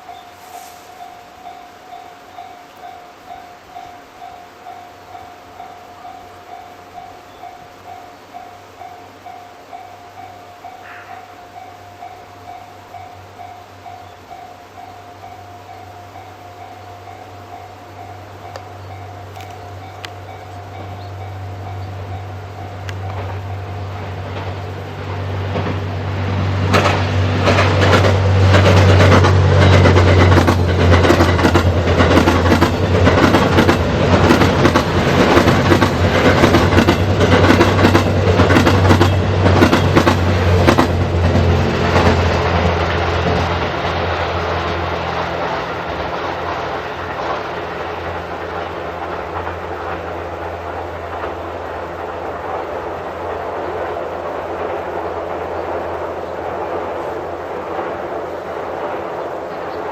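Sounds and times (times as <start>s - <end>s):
wheels clicking over rail joints: 18.5s - 59.7s.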